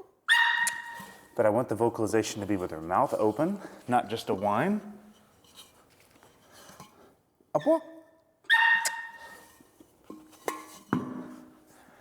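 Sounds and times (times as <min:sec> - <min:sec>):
puppy barking high-pitched: 0:00.3 - 0:01.0, 0:08.5 - 0:09.2.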